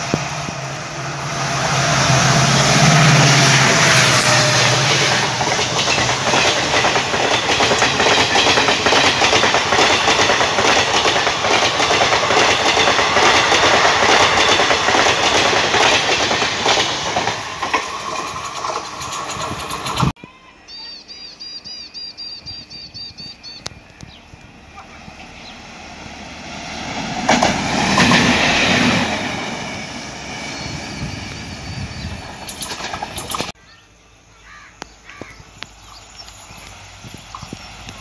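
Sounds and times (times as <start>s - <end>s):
train wheels clickety-clack: 2.8s - 20.2s, 27.2s - 29.7s, 31.0s - 33.6s, 35.6s - 38.0s.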